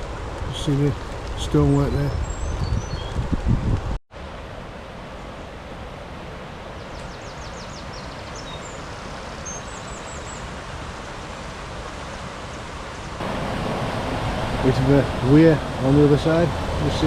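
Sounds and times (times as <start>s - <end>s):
small bird chirping: 2.1s - 3.2s
river rushing over a weir: 4.2s - 17.0s.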